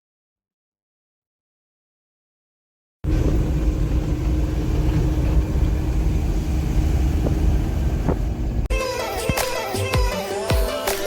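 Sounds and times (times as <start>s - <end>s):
car engine low rumble: 3.0s - 8.7s.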